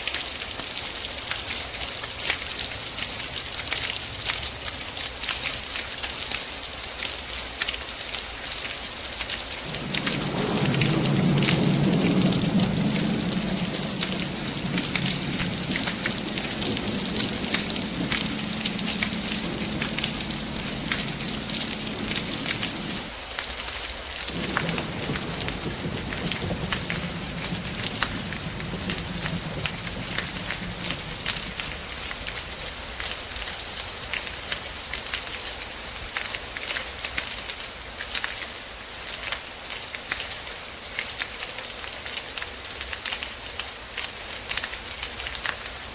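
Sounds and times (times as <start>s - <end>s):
heavy rain pattering: 0.0s - 45.9s
loud low rumble with hum: 9.7s - 23.1s, 24.4s - 32.0s.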